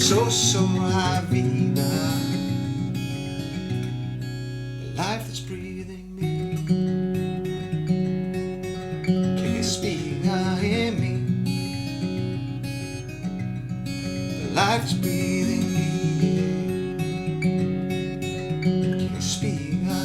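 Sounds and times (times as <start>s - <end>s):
wordless vocal glide: 0.0s - 2.9s
acoustic guitar strumming: 0.0s - 20.0s.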